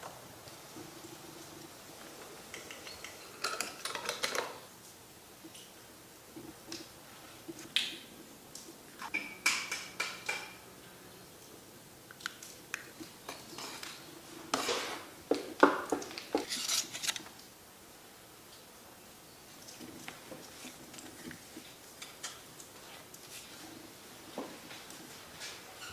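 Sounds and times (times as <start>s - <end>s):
pans and dishes clinking: 9.1s - 10.7s.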